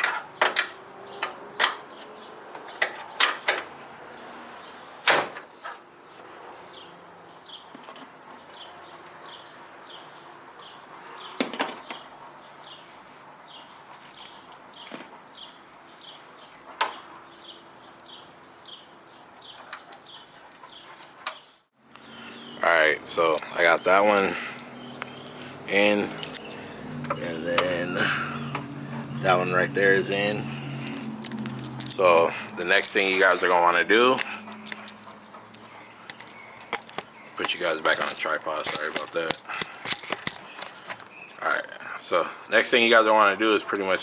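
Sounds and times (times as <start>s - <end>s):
metal knocks and clinks: 11.4s - 12.0s.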